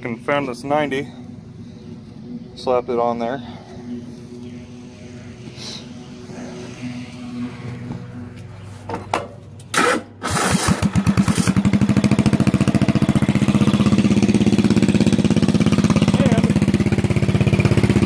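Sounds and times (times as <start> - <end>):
lawn tractor engine cranking and running: 9.6 - 13.2.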